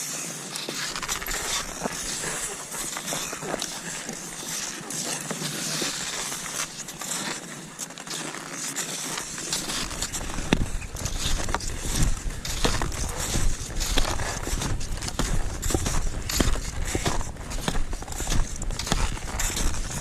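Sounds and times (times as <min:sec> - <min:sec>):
skis crunching through snow: 0:00.0 - 0:20.0
heavy stride thumps: 0:09.6 - 0:20.0.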